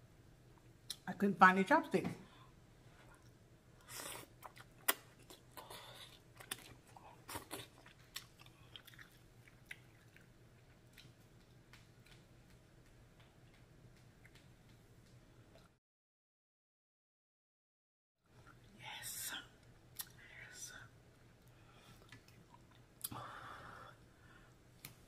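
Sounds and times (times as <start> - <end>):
person chewing noodles: 3.1 - 15.7, 21.4 - 23.4
wet mouth smacks and clicks: 4.4 - 5.4, 10.9 - 15.7, 19.9 - 20.2.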